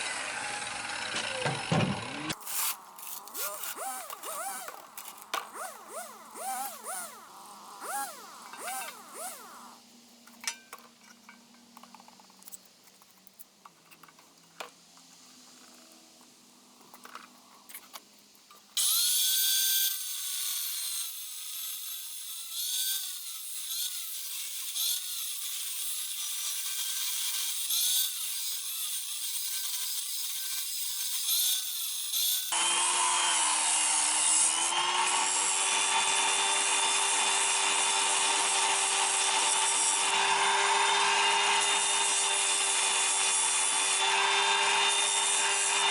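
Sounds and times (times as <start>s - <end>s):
angle grinder grinding steel: 2.3s - 9.8s.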